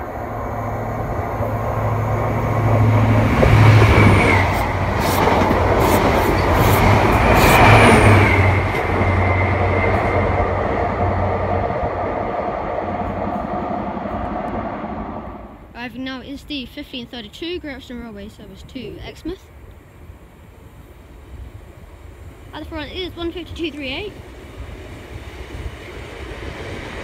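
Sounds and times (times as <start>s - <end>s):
train engine hum: 0.0s - 27.0s
wheels rumbling on rails: 0.0s - 27.0s
high whine dropping in pitch: 7.0s - 15.8s.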